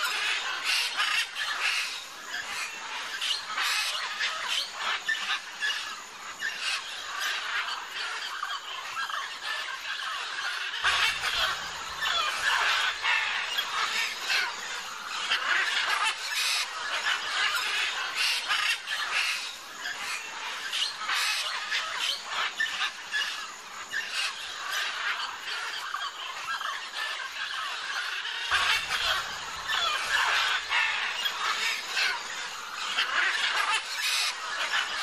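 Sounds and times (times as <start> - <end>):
macaws squawking: 6.5 - 23.4, 24.0 - 35.0.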